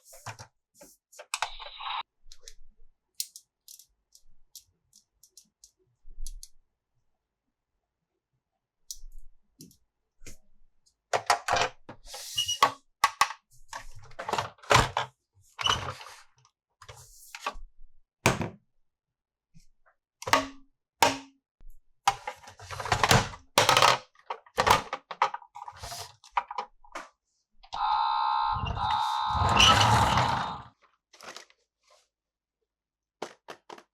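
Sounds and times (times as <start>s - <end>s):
plastic toy parts clicking: 3.2s - 6.6s
sustained held tones: 27.8s - 30.7s.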